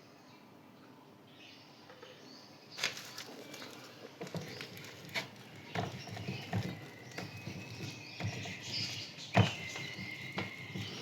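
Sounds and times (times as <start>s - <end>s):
taps and scratches of writing: 4.2s - 11.0s.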